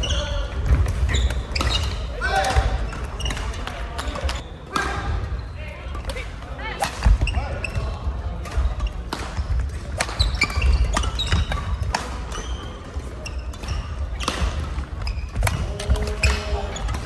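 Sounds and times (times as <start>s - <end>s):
shoe squeaks on court floor: 0.0s - 2.1s, 10.1s - 14.4s
rackets hitting shuttlecocks: 0.6s - 5.2s, 5.9s - 7.4s, 8.4s - 17.0s.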